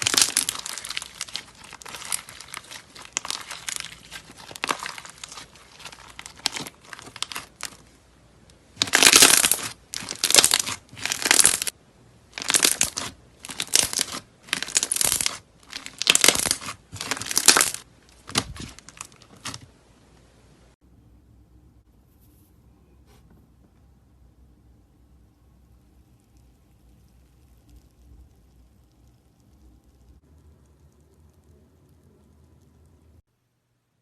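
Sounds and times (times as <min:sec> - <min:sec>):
slime squeezed by hand crackling: 0:00.0 - 0:07.8, 0:08.8 - 0:11.7, 0:12.4 - 0:19.6.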